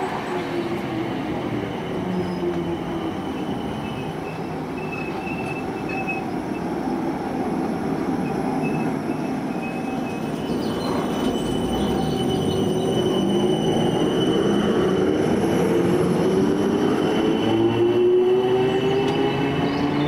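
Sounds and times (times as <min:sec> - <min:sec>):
train wheels on rail: 0:00.0 - 0:20.0.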